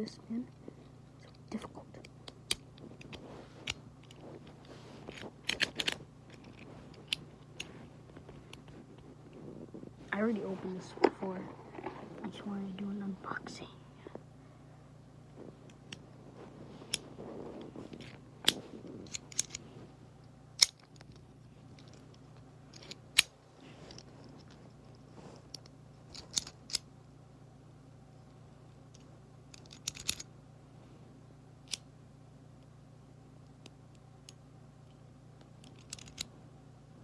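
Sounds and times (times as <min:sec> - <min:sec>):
soft rustle of packaging: 0:00.4 - 0:14.3, 0:15.2 - 0:26.7.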